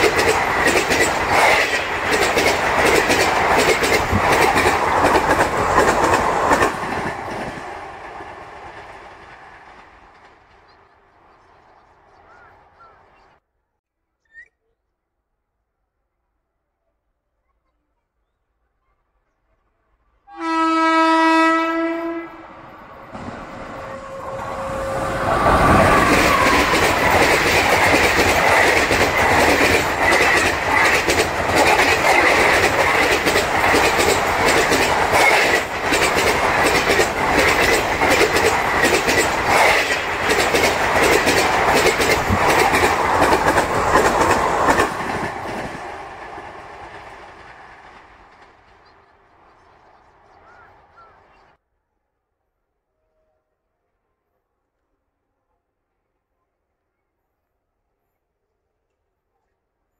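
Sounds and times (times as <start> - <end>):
train horn: 20.3 - 22.6, 23.6 - 26.8.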